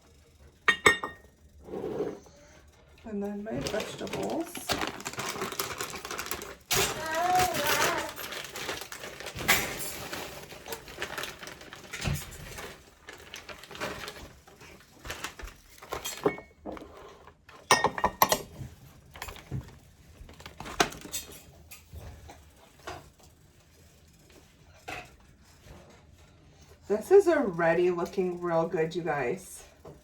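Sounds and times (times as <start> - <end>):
frozen vegetables pattering into pan: 3.5 - 16.3.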